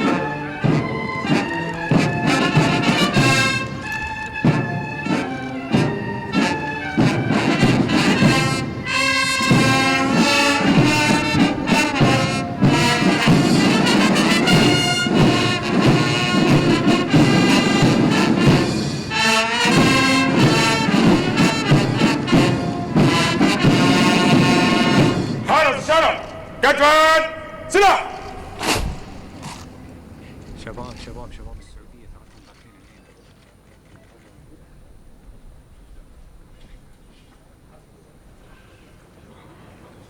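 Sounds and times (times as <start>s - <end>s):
military brass band playing: 0.0s - 32.3s.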